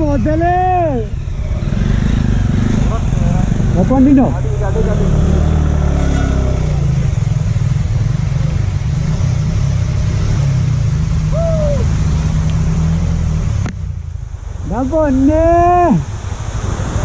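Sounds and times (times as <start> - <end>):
motorcycle engine running: 0.0 - 14.6
wind and rain hiss: 0.0 - 17.0.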